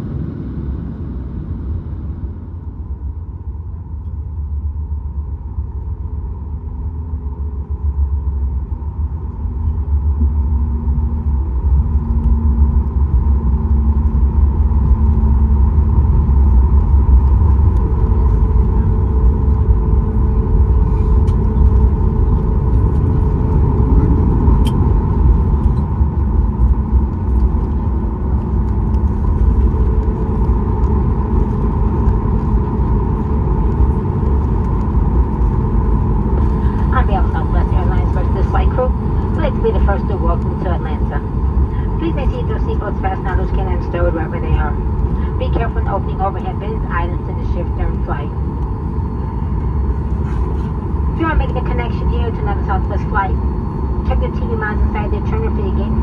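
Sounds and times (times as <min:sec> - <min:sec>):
low rumble of engines and airflow: 0:00.0 - 0:56.0
faint steady engine tones: 0:01.3 - 0:56.0.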